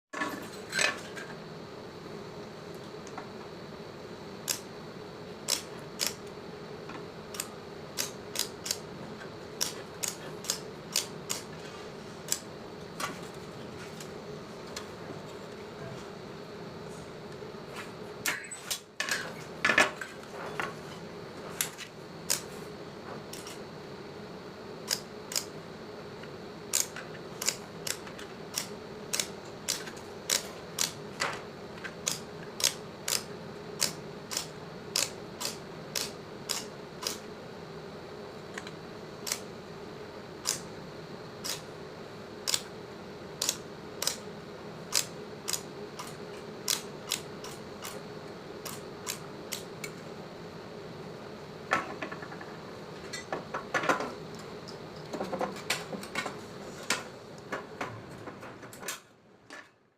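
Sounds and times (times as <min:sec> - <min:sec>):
sharp snapping clicks: 0:32.0 - 0:37.2, 0:43.4 - 0:44.2, 0:44.9 - 0:46.1.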